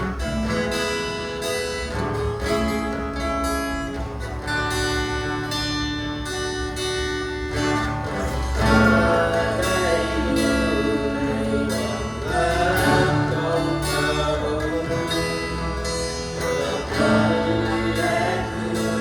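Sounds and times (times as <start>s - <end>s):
guitar: 0.0s - 19.0s
worship song by church band: 4.0s - 19.0s
person singing: 8.2s - 19.0s.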